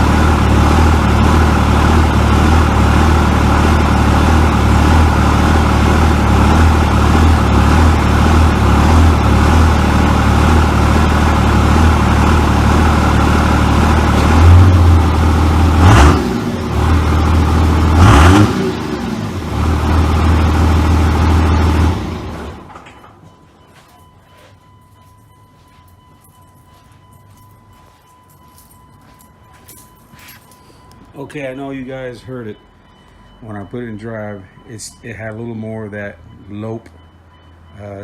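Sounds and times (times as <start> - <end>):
diesel engine idling: 0.0 - 22.8.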